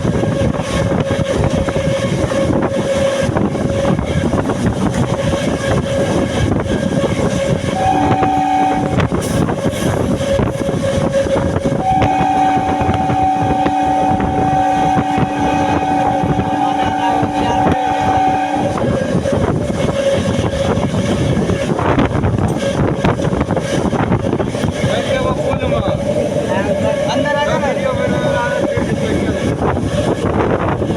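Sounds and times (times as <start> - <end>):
train running: 0.0 - 30.9
two-tone train horn: 5.6 - 20.9.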